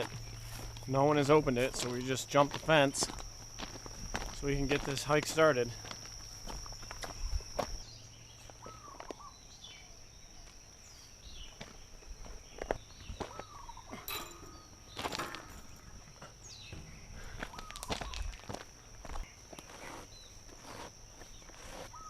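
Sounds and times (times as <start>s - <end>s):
footsteps on a trail: 0.0s - 9.3s, 10.4s - 22.0s
bird chirps: 12.4s - 18.4s.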